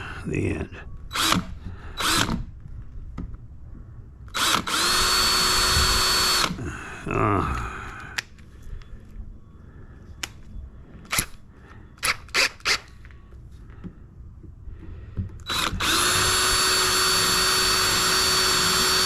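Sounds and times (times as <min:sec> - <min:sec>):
power drill whining: 0:01.1 - 0:02.5, 0:04.3 - 0:06.6, 0:15.4 - 0:19.0.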